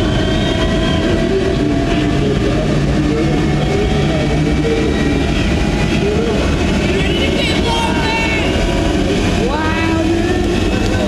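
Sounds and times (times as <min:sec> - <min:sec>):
jet engine roaring: 0:00.0 - 0:11.0
jet engine whine: 0:00.0 - 0:11.0.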